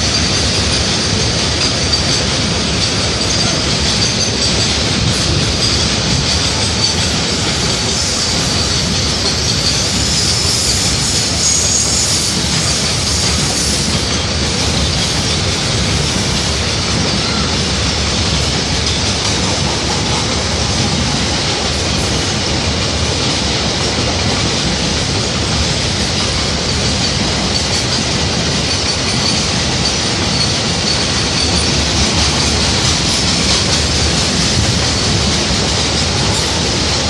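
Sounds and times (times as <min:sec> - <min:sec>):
train wheels rumbling on rails: 0:00.0 - 0:37.0
faint high-pitched squeal: 0:05.0 - 0:18.7.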